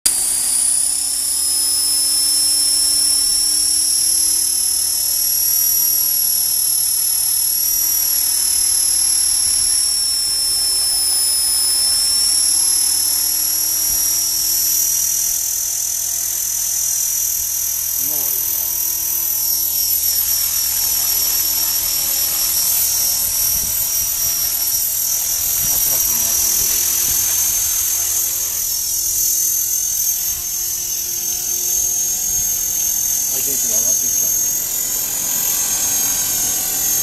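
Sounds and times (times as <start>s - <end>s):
rc helicopter motor whine: 0.0s - 37.0s.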